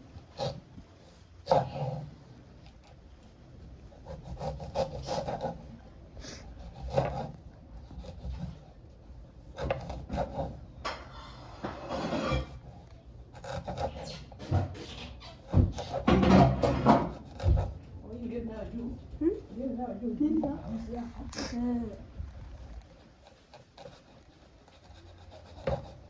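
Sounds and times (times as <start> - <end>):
scraping and knocking on wood: 9.6 - 12.8, 13.4 - 18.0.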